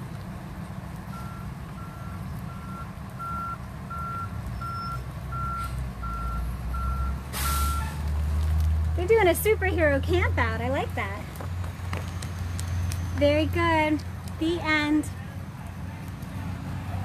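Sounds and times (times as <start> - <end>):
low engine rumble: 0.0 - 17.0
reversing alarm beeping: 1.1 - 7.9
short hiss: 7.3 - 8.0.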